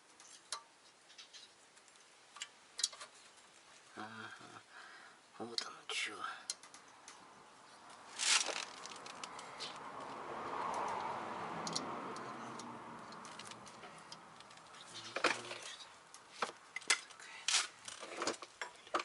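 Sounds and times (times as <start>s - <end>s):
metallic clicks of tools and parts: 1.8s - 3.1s, 11.6s - 19.0s.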